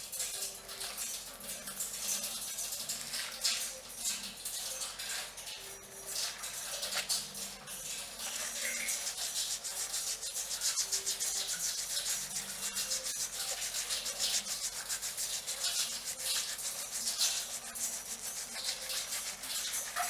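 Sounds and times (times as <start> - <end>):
fingernails scratching hair: 8.3 - 20.0.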